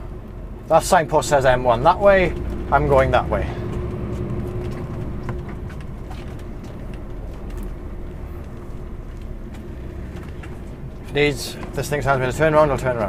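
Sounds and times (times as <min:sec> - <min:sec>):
diesel engine droning: 0:00.0 - 0:13.0
road noise: 0:00.0 - 0:13.0.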